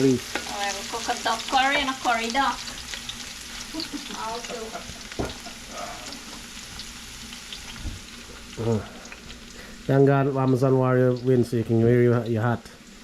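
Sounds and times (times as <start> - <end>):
food sizzling in hot oil: 0.0 - 13.0
knock: 5.2 - 5.4.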